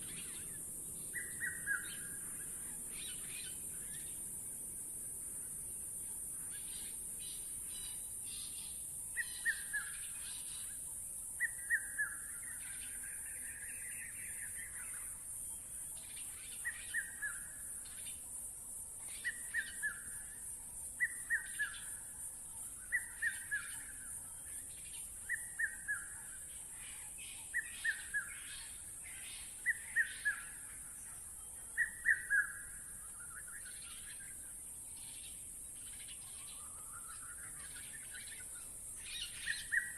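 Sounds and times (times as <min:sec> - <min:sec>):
steady high hiss: 0:00.0 - 0:39.9.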